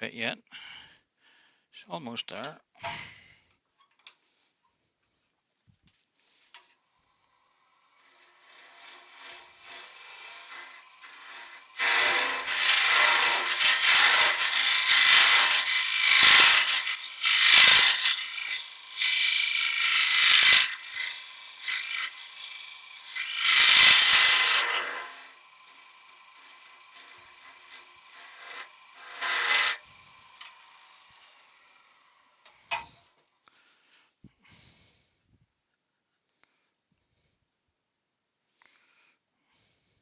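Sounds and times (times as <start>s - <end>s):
tool rasping on spinning wood: 7.8s - 32.9s.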